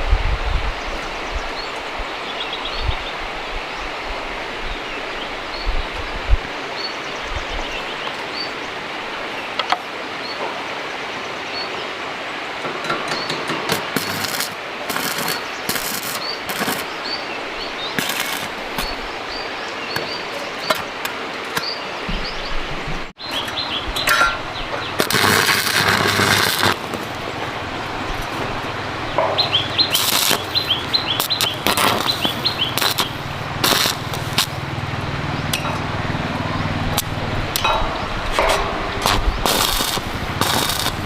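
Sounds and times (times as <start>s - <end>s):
crackling hiss: 0.0s - 22.5s, 23.2s - 41.0s
outdoor rushing noise: 20.6s - 41.0s
small bird chirping: 29.1s - 33.2s.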